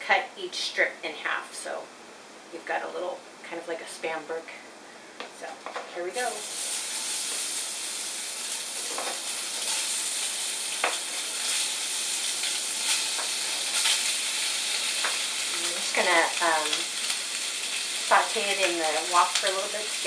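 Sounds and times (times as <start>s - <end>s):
meat sizzling in a wok: 6.1s - 20.0s.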